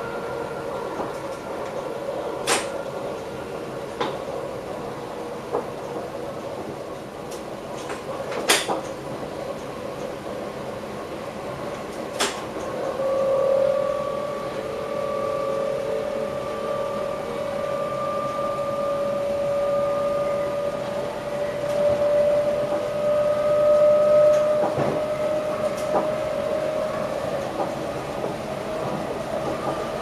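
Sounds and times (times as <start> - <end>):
train running noise: 0.0 - 30.0
electric train drive whine: 9.6 - 30.0.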